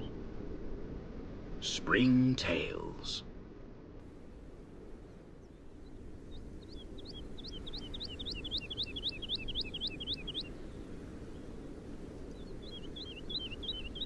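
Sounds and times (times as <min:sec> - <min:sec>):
songbird singing: 0:04.0 - 0:14.0.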